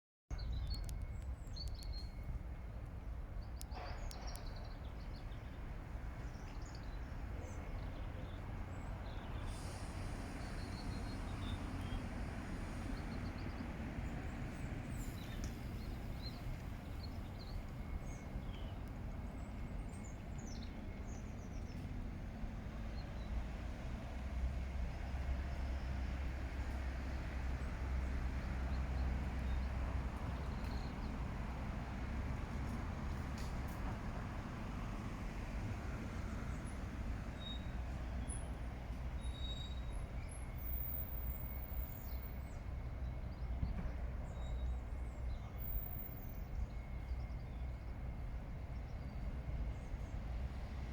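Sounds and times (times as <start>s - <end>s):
distant city traffic rumble: 0.3s - 50.9s.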